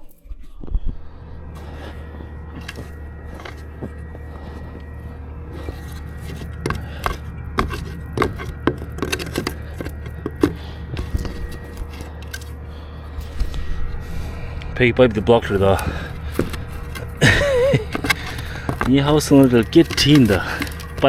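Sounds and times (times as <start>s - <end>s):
low machine hum: 0.0s - 21.0s
tools clicking and knocking: 6.6s - 12.5s, 16.4s - 21.0s.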